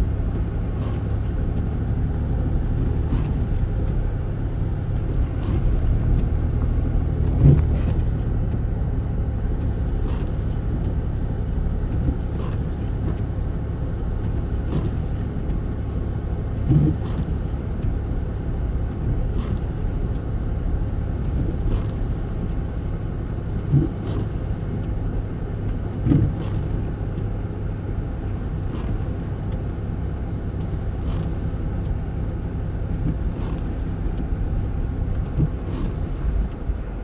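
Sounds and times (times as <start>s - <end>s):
car driving rumble: 0.0s - 37.0s
dull thumps: 33.0s - 36.7s.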